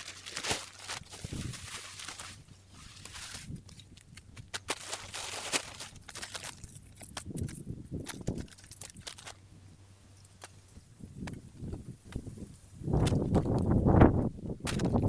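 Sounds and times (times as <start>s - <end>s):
rustling: 0.0s - 9.5s.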